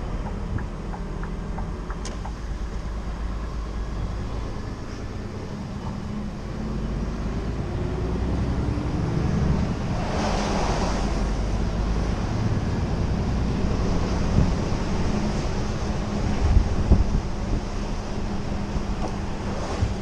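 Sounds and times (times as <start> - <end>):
road noise: 0.0 - 20.0
truck diesel engine drone: 0.0 - 20.0
rushing whoosh: 6.5 - 20.0.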